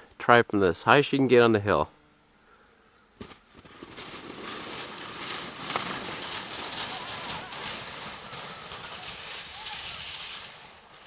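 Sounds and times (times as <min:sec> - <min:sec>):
sled sliding over crusted snow: 0:03.2 - 0:11.0.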